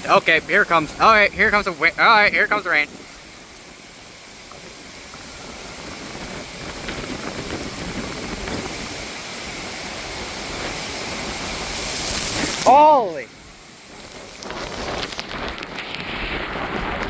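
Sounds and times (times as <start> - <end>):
gusting wind: 0.0 - 17.0
rain rushing: 0.0 - 17.0.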